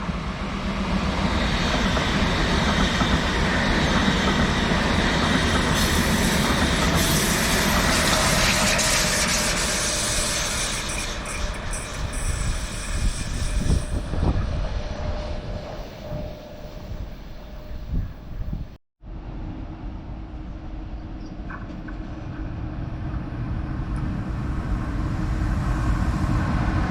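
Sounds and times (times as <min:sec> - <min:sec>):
train rushing past: 0:00.0 - 0:26.9.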